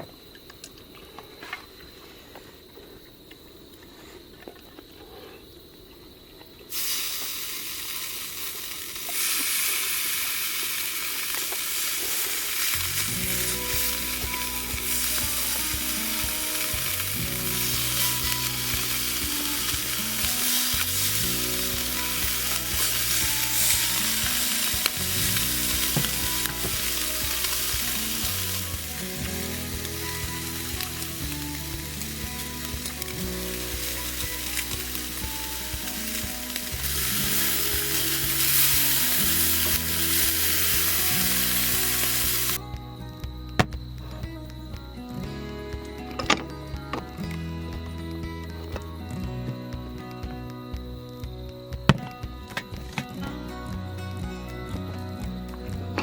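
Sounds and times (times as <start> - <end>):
food sizzling in a pan: 6.7 - 42.6
soft background music: 12.5 - 56.0.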